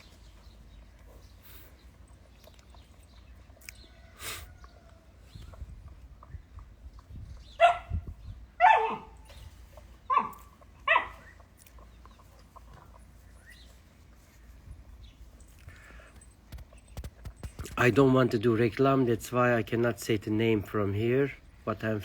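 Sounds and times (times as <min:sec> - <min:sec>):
dog barking: 0:07.6 - 0:08.0, 0:08.6 - 0:09.2, 0:10.1 - 0:11.3.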